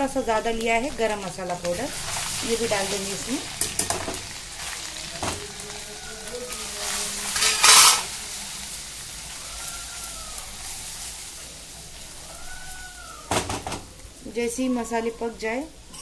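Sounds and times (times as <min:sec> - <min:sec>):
spices frying in hot oil: 0:00.0 - 0:16.0
spatula stirring: 0:00.3 - 0:13.0.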